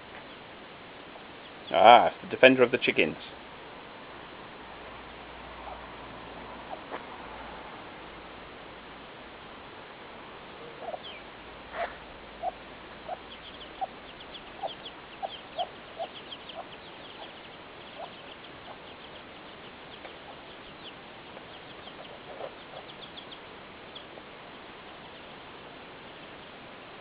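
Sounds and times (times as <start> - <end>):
hen clucking: 5.5 - 7.1, 10.6 - 25.4
chicks cheeping: 5.6 - 5.9, 10.7 - 26.6.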